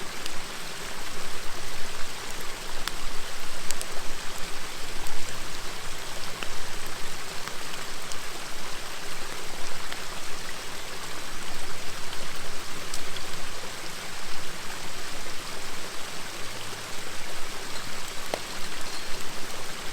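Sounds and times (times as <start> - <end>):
river water flowing over stones: 0.0 - 19.9
campfire pops and crackles: 17.6 - 19.9.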